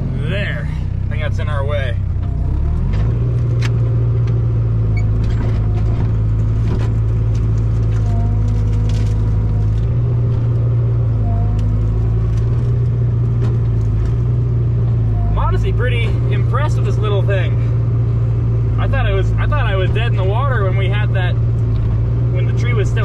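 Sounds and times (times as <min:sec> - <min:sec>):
excavator engine under load: 0:00.0 - 0:23.0
short squeaks: 0:04.8 - 0:06.3, 0:07.8 - 0:14.4.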